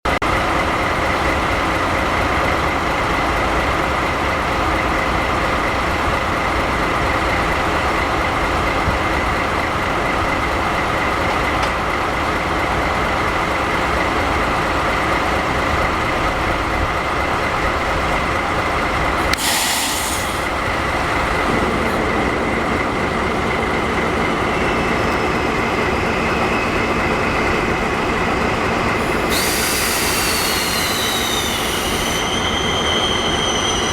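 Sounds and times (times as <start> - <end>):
train running on rails: 0.1 - 33.9
constant whine: 20.3 - 32.5
short high-pitched burst: 29.0 - 33.4.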